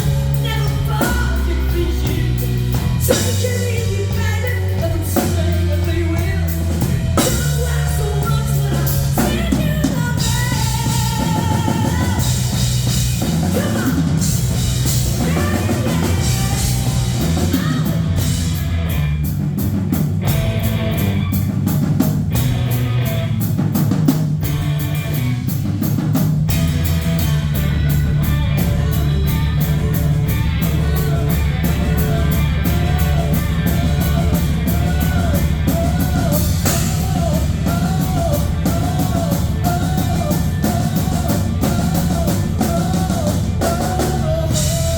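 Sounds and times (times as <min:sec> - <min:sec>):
person singing: 0:00.0 - 0:18.6, 0:27.2 - 0:44.9
drum kit: 0:00.0 - 0:44.9
guitar: 0:00.0 - 0:44.9
low bass line: 0:00.0 - 0:44.9
fast cymbal beat: 0:06.4 - 0:18.8, 0:25.2 - 0:44.9.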